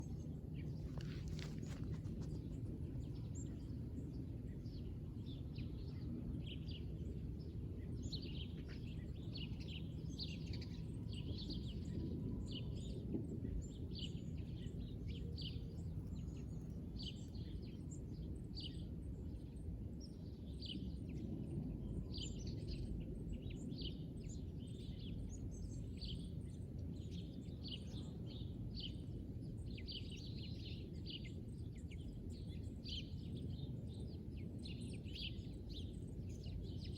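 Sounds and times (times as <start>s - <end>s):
small birds chirping: 0.0s - 11.9s
low background rumble: 0.0s - 36.9s.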